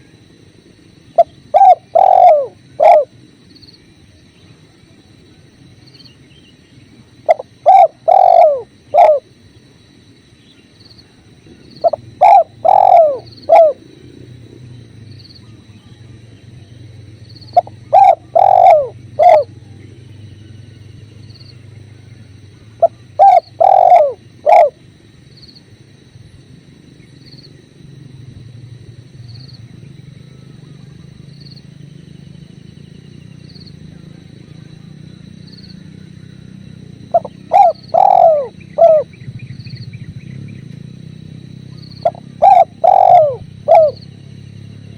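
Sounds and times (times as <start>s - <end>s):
dove cooing: 1.1s - 3.2s, 7.2s - 9.4s, 11.5s - 14.6s, 17.4s - 20.4s, 22.2s - 24.9s, 35.7s - 39.2s, 41.5s - 44.1s.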